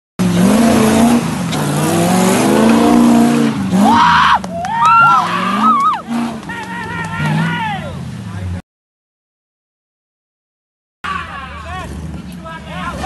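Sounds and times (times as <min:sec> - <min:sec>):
engine revving hard: 0:00.2 - 0:08.4.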